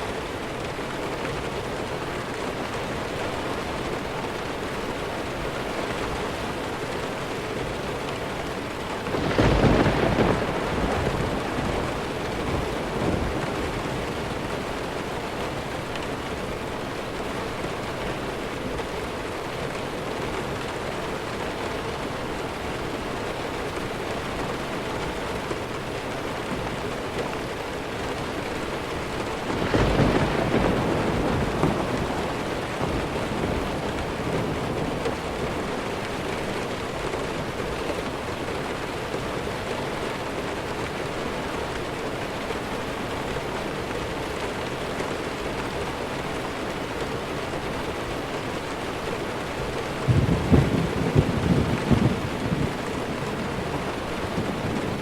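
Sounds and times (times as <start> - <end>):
steady rain: 0.0 - 55.0
thunder clap rumbling: 9.0 - 15.7, 29.3 - 36.4, 49.4 - 55.0.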